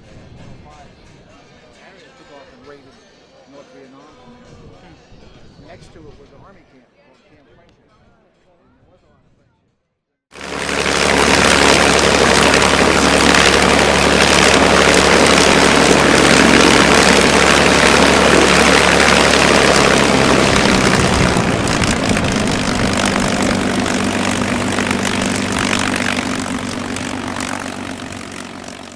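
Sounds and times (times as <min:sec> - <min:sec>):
propeller plane engine droning: 0:10.4 - 0:28.9.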